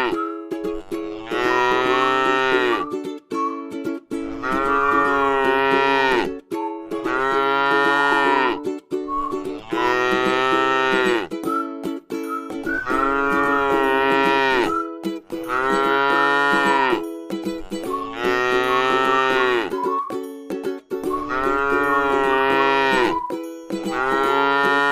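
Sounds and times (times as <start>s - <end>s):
cow mooing: 1.0s - 2.8s, 4.4s - 6.3s, 7.0s - 8.6s, 9.6s - 11.3s, 12.9s - 14.8s, 15.4s - 17.0s, 18.0s - 19.7s, 21.2s - 23.2s, 23.9s - 24.9s.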